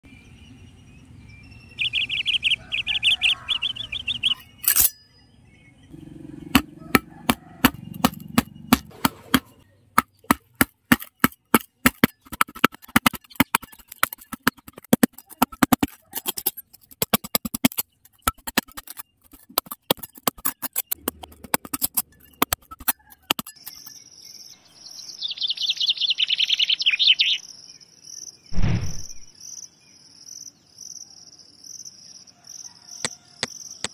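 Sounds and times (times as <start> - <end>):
birds chirping: 0.0 - 29.3
metal scraper scraping soil: 4.6 - 5.0, 6.9 - 24.0
low thump: 28.6 - 29.3.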